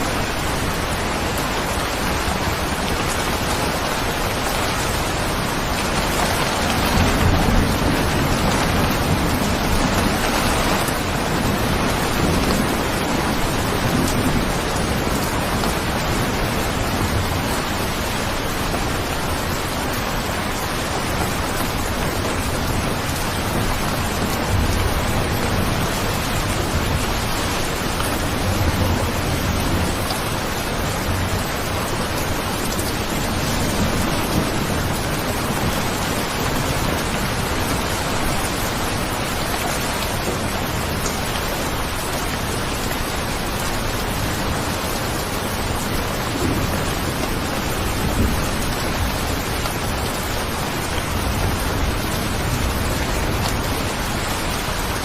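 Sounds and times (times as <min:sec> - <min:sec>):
heavy rain hissing: 0:00.0 - 0:55.0.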